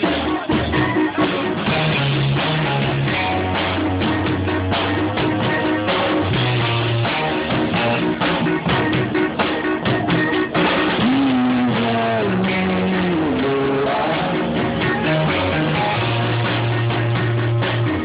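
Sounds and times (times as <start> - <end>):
rock music with guitar and drums: 0.0 - 18.0.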